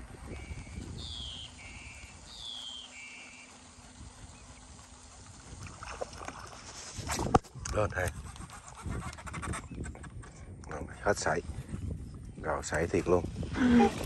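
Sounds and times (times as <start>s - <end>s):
bird calling: 0.3s - 4.7s.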